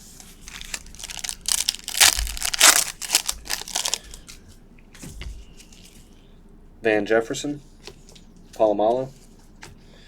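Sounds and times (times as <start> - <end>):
wrapper crinkling and tearing: 0.4 - 4.2.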